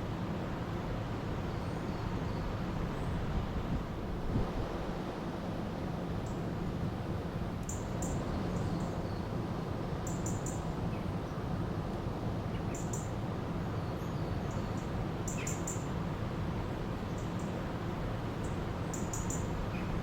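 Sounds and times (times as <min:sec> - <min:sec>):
small birds chirping: 0:13.8 - 0:15.9, 0:18.4 - 0:20.0.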